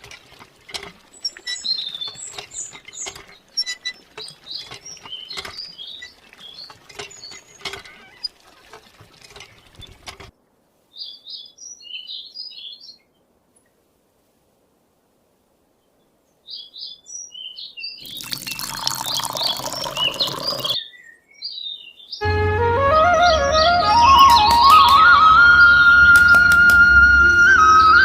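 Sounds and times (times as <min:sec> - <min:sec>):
rapid irregular clicking and tapping: 0:00.0 - 0:10.3
birds chirping: 0:01.0 - 0:10.1, 0:15.9 - 0:22.4, 0:23.0 - 0:28.0.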